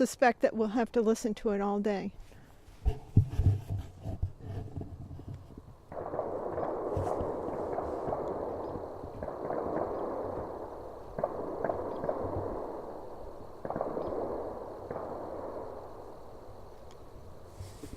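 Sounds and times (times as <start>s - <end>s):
distant gunshots echoing: 5.9s - 16.5s.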